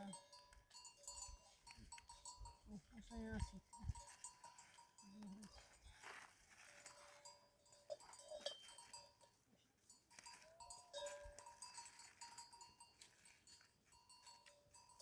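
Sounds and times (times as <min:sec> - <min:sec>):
faint livestock bells ringing: 0:00.0 - 0:15.0.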